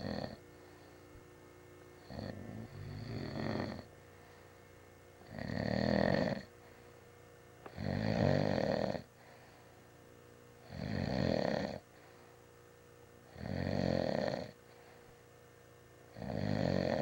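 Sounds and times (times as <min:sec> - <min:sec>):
person snoring loudly: 0:00.0 - 0:00.4, 0:02.0 - 0:03.9, 0:05.2 - 0:06.5, 0:07.7 - 0:09.1, 0:10.6 - 0:11.8, 0:13.3 - 0:14.6, 0:16.1 - 0:17.0.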